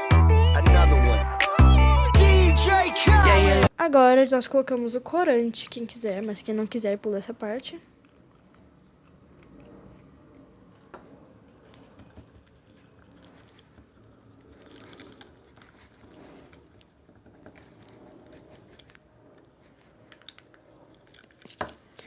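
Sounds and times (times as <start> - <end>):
utensil scraping and clicking: 8.0 - 22.0
slime stirring in container: 8.1 - 22.0.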